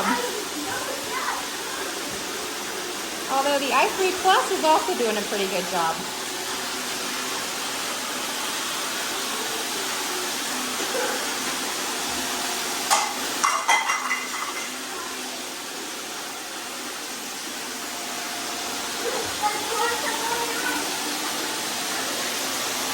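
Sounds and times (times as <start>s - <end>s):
robot vacuums whirring: 15.1s - 22.9s.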